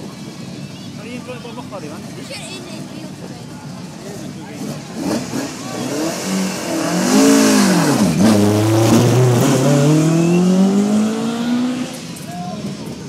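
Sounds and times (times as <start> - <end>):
rally car engine revving: 3.8 - 13.0.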